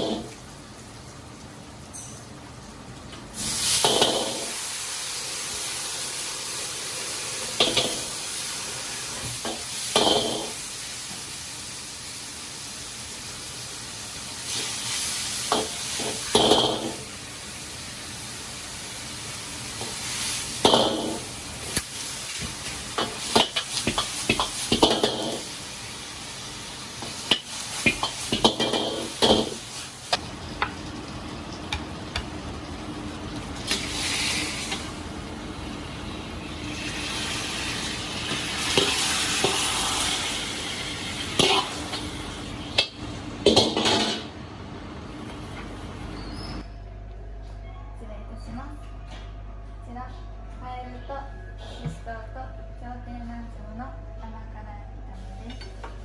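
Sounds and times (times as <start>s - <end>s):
food sizzling in a pan: 0.0s - 2.5s, 3.3s - 44.2s.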